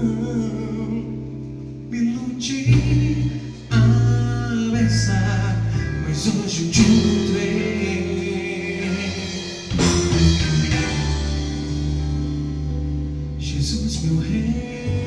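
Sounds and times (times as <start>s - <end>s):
live rock band playing: 6.2s - 14.2s.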